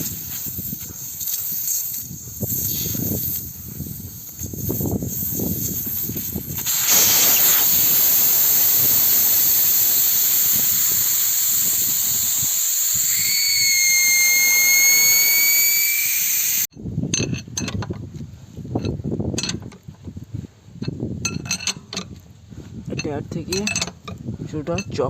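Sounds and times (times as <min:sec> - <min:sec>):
compressed air hissing: 0:00.0 - 0:16.7
thin whistle: 0:06.7 - 0:16.7.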